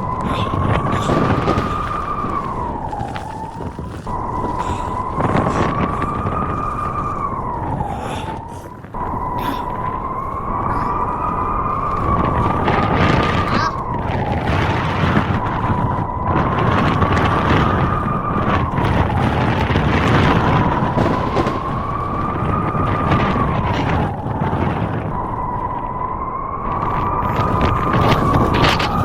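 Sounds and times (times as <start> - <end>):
wind howling and whistling: 0.0 - 29.0.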